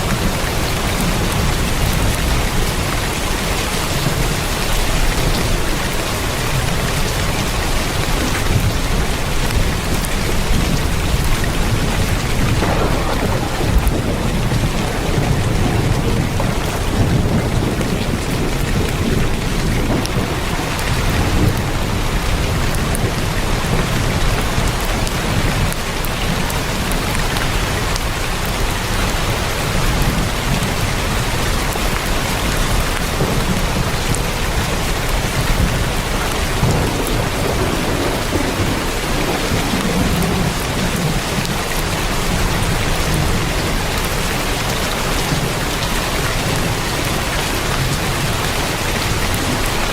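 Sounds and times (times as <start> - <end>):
heavy rain on a tin roof: 0.0 - 49.9
deep low rumble: 12.4 - 18.9.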